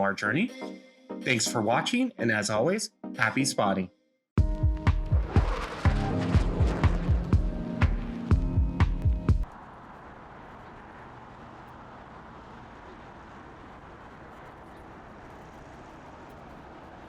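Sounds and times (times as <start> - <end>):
music: 0.0 - 3.6, 4.4 - 9.5
outdoor ambience rushing noise: 5.0 - 17.0.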